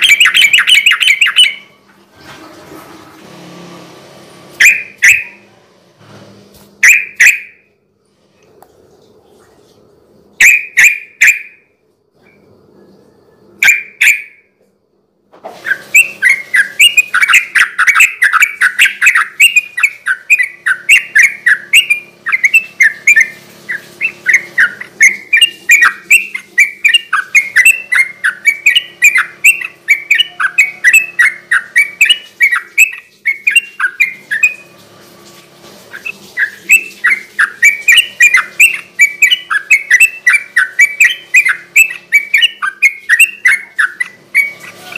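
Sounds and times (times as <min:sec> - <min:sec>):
bird chattering song: 0:00.0 - 0:01.8, 0:04.6 - 0:05.4, 0:06.8 - 0:07.6, 0:10.4 - 0:11.6, 0:13.6 - 0:14.4, 0:15.7 - 0:34.6, 0:36.0 - 0:44.9.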